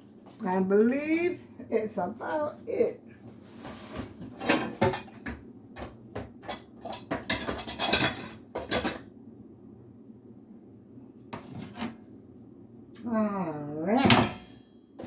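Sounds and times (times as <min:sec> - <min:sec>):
dishes clinking and clattering: 0:04.3 - 0:09.1.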